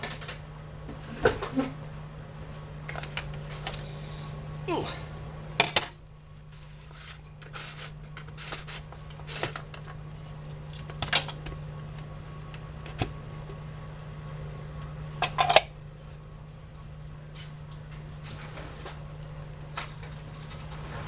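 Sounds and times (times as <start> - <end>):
kitchen items clicking and clattering: 15.2 - 15.7, 19.7 - 21.0.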